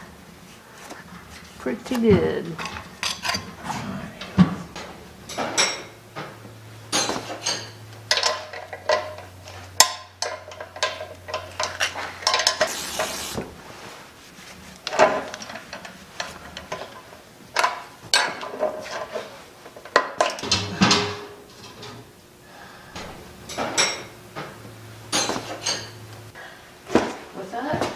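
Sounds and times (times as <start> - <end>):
brief hiss: 12.7 - 13.6.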